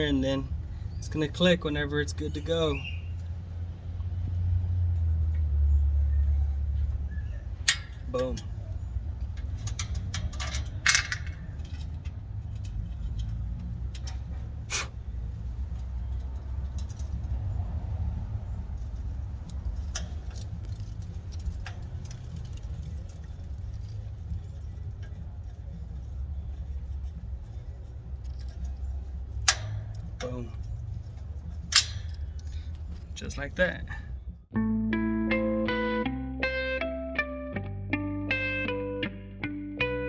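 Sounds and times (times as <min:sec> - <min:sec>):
steady low rumble: 0:00.0 - 0:35.8
metallic clicks and taps of a tool: 0:28.2 - 0:33.0.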